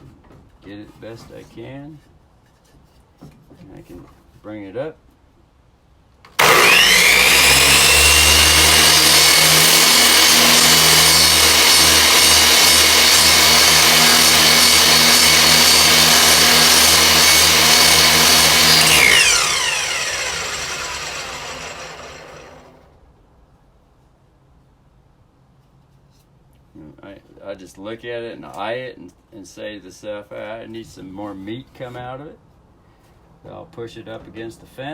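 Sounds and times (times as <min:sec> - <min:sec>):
electric miter saw whining: 0:06.3 - 0:23.0.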